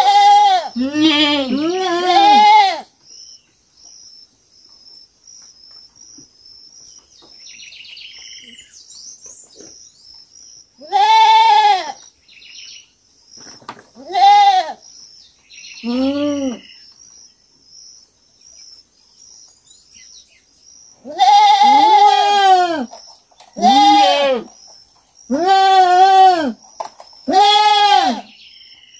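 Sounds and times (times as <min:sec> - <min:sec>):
young goat bleating: 0:00.0 - 0:02.9, 0:10.8 - 0:12.0, 0:14.0 - 0:14.8, 0:15.8 - 0:16.6, 0:21.0 - 0:22.9, 0:23.6 - 0:24.5, 0:25.3 - 0:26.6, 0:27.3 - 0:28.3.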